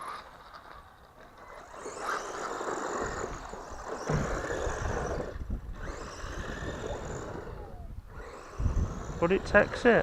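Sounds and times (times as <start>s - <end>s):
tyre noise on rough ground: 0.0s - 7.3s
rc car motor whining: 0.0s - 10.0s
brief knock: 4.1s - 4.5s.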